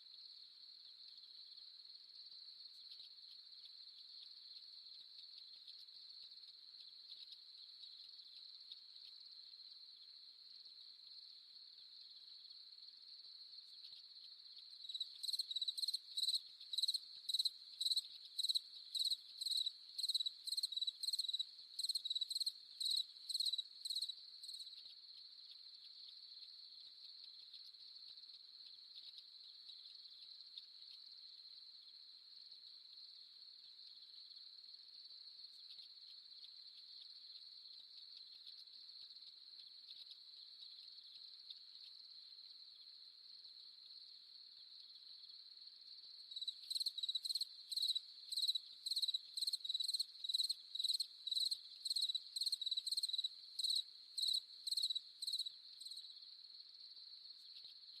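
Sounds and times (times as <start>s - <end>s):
crickets trilling chorus: 0.2s - 31.9s, 35.4s - 58.0s
loud cricket chirping: 13.6s - 24.9s, 45.8s - 57.8s.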